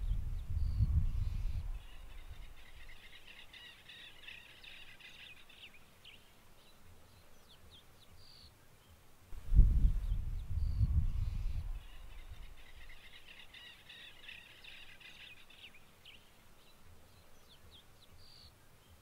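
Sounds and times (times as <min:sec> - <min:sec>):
wind rumble on microphone: 0:00.0 - 0:02.9, 0:09.3 - 0:13.0.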